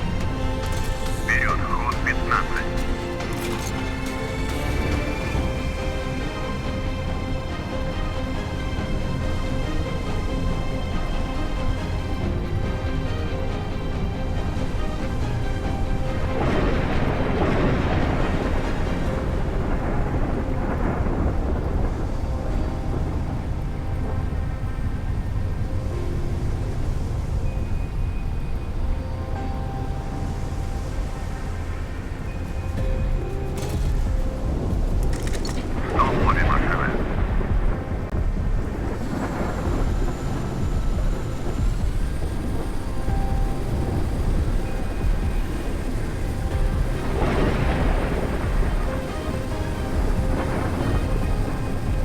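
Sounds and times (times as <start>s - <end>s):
faint music: 0.0s - 52.0s
steady low rumble: 0.0s - 52.0s.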